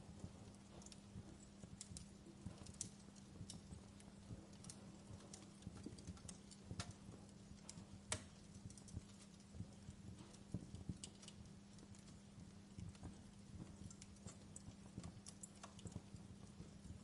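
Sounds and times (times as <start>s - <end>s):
faint low hum: 0.0s - 17.0s
wood fire crackling: 0.0s - 17.0s.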